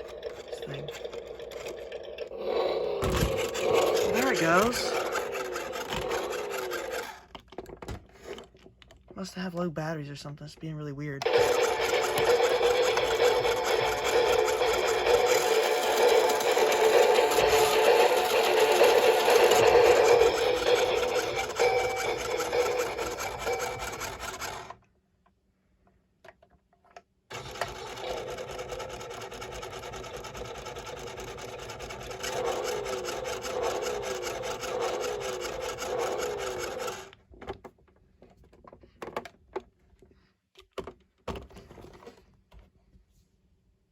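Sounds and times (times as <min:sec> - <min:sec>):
toy motor and gears whirring: 0:00.0 - 0:07.4, 0:11.2 - 0:24.8, 0:27.3 - 0:37.1
toy clicks: 0:03.0 - 0:07.3, 0:11.2 - 0:24.8, 0:32.0 - 0:37.1.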